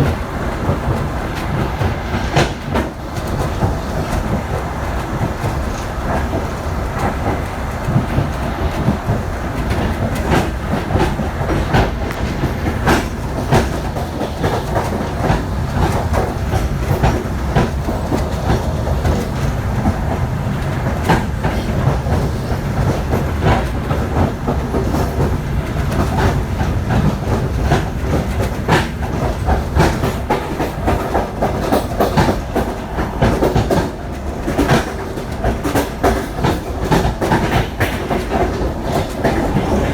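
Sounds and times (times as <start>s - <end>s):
train rumbling on track: 0.0s - 39.9s
wheels clicking over rail joints: 0.0s - 39.9s.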